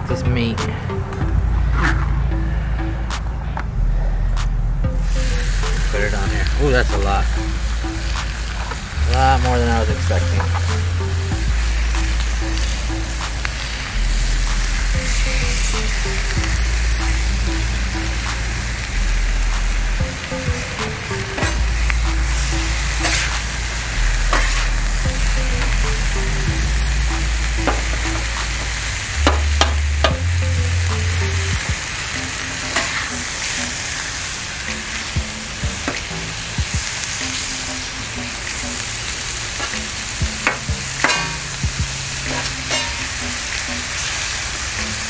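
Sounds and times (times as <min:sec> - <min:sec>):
meat sizzling on a griddle: 0:05.0 - 0:45.0
metal spatula scraping griddle: 0:24.1 - 0:24.8, 0:42.2 - 0:43.1.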